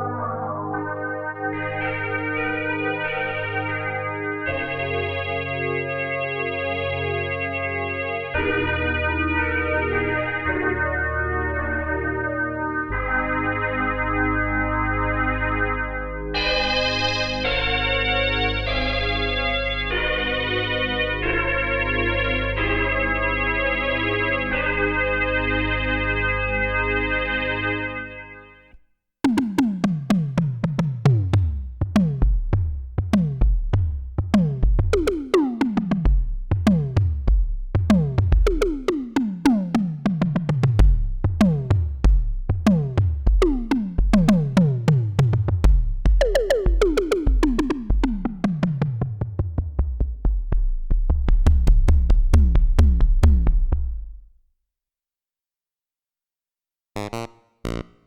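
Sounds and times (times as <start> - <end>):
synth bass line: 29.2 - 54.2, 57.0 - 58.0
percussive synth pattern: 29.2 - 54.3, 57.0 - 58.0
held synth chord: 57.0 - 58.0.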